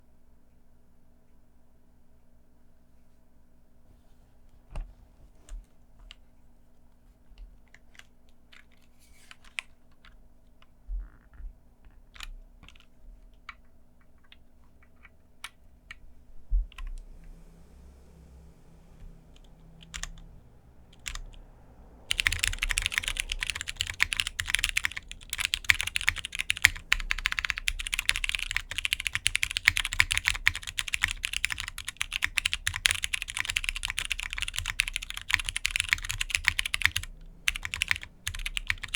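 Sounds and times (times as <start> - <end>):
mechanical keyboard typing: 11.9 - 16.0, 19.3 - 20.2, 21.0 - 21.3, 22.1 - 38.9.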